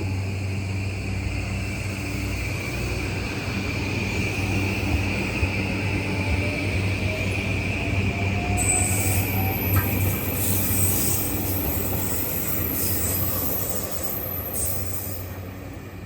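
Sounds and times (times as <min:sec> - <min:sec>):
train rumbling: 0:00.0 - 0:16.0
wheel squeals: 0:08.6 - 0:15.4.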